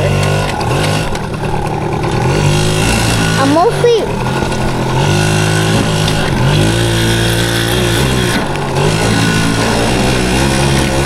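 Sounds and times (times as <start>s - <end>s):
two-stroke motorcycle engine: 0.0s - 11.0s.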